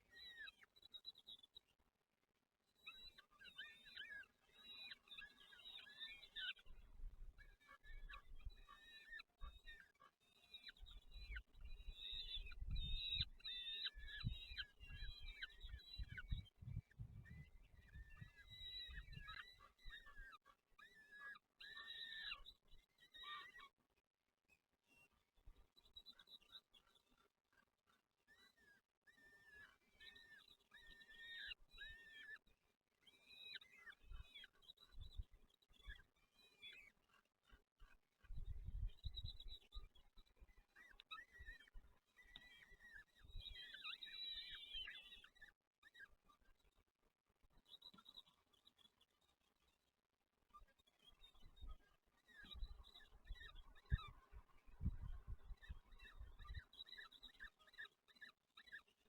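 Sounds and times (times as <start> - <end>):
small birds calling: 10.5 - 20.4, 38.4 - 45.4.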